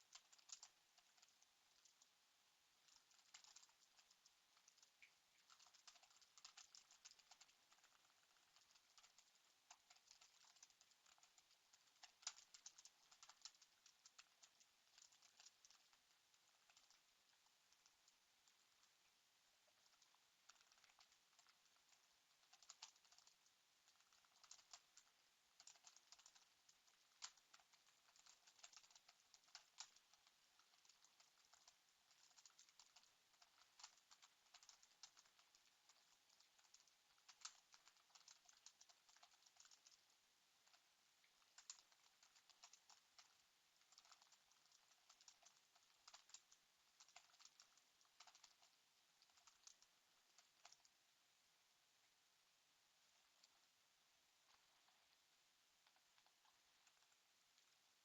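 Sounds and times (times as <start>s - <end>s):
typing on computer keyboard: 0.1s - 2.0s, 2.8s - 17.0s, 19.8s - 40.0s, 41.4s - 50.9s.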